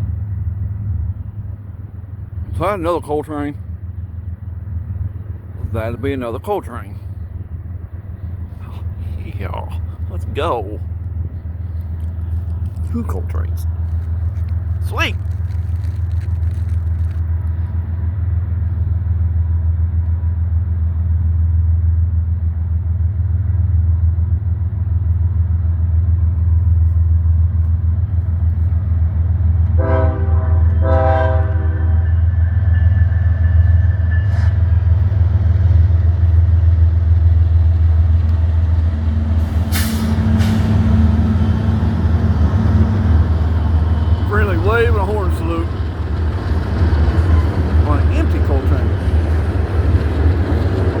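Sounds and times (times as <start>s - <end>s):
diesel locomotives rumbling: 0.0s - 51.0s
locomotive horn blasts: 29.7s - 33.1s.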